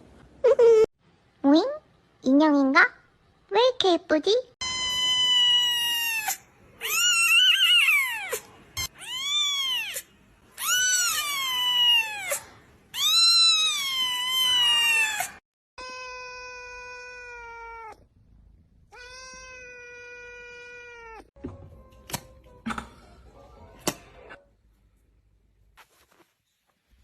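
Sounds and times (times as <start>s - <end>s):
cat meowing: 4.6s - 18.0s, 18.9s - 21.3s.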